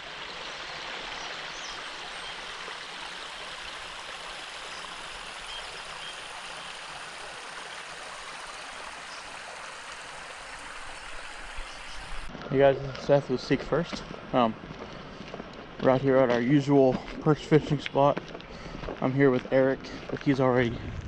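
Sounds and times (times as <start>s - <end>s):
flowing water rushing: 0.0s - 12.3s.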